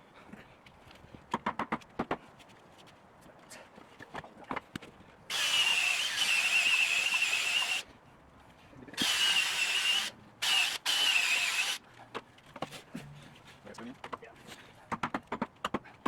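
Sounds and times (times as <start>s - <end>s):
power tool hissing and whining: 5.3s - 7.8s, 9.0s - 11.8s.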